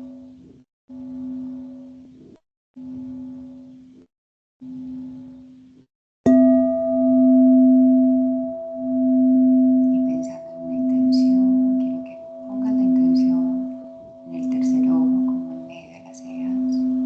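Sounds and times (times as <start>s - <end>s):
singing bowl ringing: 6.3s - 17.0s.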